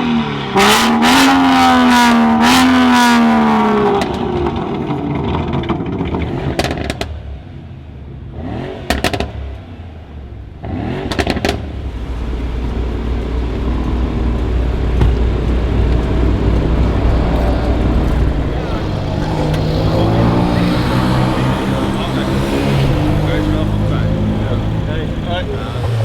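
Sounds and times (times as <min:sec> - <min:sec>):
car engine revving: 0:00.0 - 0:26.0
exhaust pops and crackles: 0:02.4 - 0:07.2, 0:08.9 - 0:09.4, 0:10.6 - 0:26.0
exhaust low rumble: 0:11.6 - 0:26.0.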